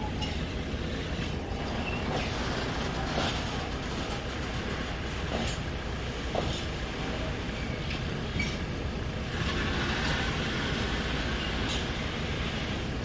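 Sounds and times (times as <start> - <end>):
train rumbling on rails: 0.0 - 13.0
train wheel knocks: 2.0 - 6.8.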